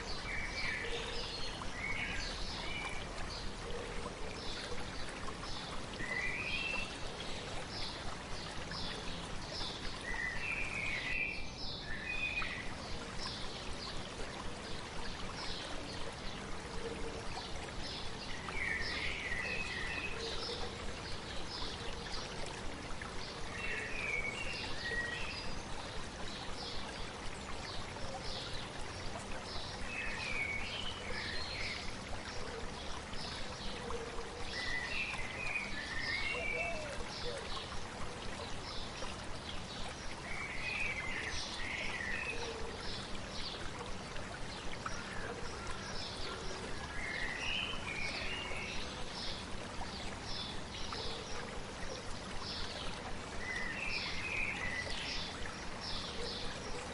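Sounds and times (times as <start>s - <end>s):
stream running: 0.0s - 56.9s
birds singing: 23.0s - 37.8s.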